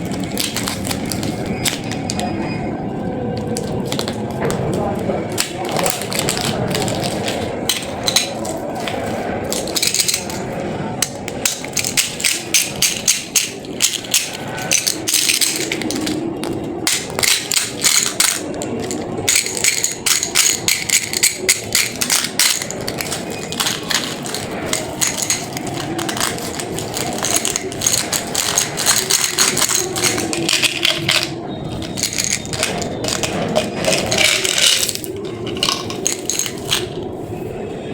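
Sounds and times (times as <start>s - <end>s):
candy wrappers crinkling and rattling: 0.0s - 2.3s, 3.3s - 37.1s.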